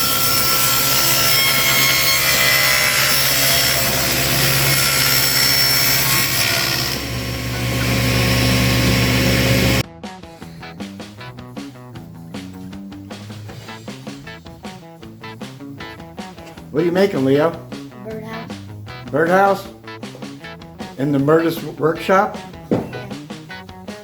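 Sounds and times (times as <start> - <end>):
power saw cutting wood: 0.0 - 9.8.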